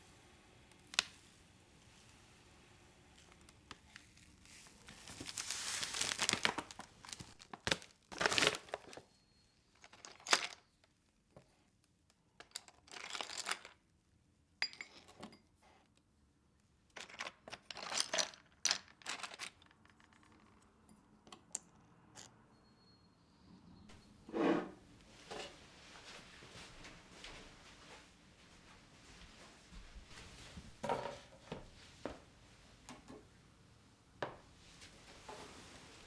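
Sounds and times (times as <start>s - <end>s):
wrapping being crumpled: 3.7s - 9.1s.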